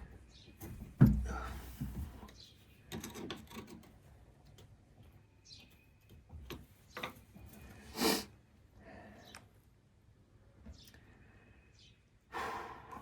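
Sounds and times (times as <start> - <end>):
clicks and knocks on pipe fittings: 0.6 - 4.7.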